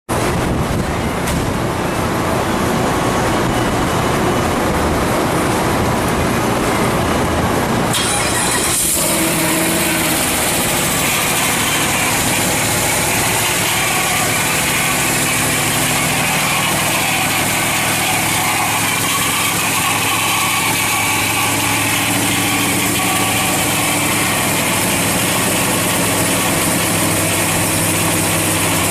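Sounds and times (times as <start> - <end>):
engine cranking and idling: 7.5 - 28.9.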